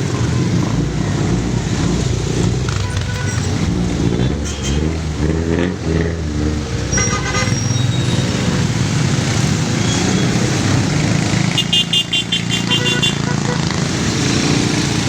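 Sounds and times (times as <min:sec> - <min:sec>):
motorcycle engines running: 0:00.0 - 0:15.0
horns beeping: 0:02.7 - 0:05.1, 0:06.8 - 0:13.9.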